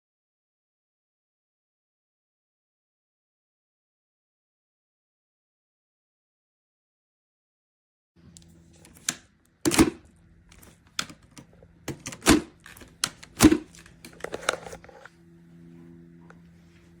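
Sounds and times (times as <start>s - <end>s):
faint steady hum: 8.2s - 17.0s
sharp clicks and knocks: 8.8s - 15.0s.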